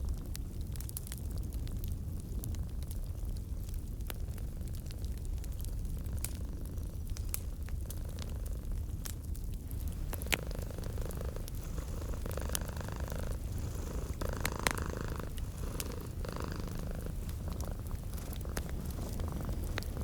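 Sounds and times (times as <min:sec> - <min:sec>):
fireplace crackling and popping: 0:00.0 - 0:20.0
cat purring: 0:04.2 - 0:20.0.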